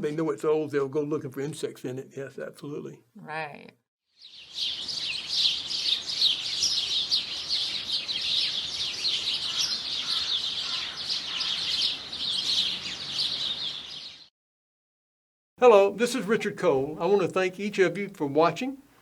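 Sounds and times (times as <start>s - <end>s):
small birds chirping: 4.2s - 14.3s.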